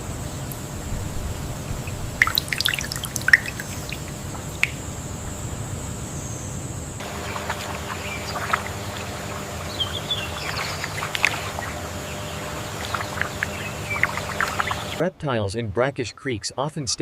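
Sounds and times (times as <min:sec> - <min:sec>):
low steady rumble: 0:00.0 - 0:15.0
thin high whine: 0:00.7 - 0:15.0
water dripping and trickling: 0:01.8 - 0:04.9, 0:07.0 - 0:15.0.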